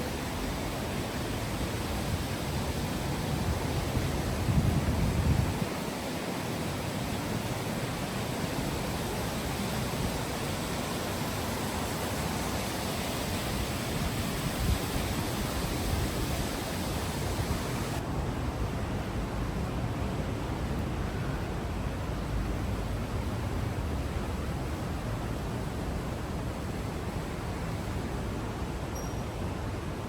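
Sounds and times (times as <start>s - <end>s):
stream water rushing: 0.0s - 18.9s.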